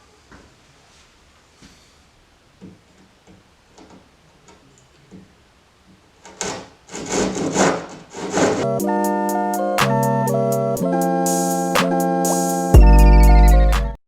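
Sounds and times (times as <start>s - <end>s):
hand saw cutting wood: 6.3s - 8.7s
electronic background music: 8.6s - 14.0s.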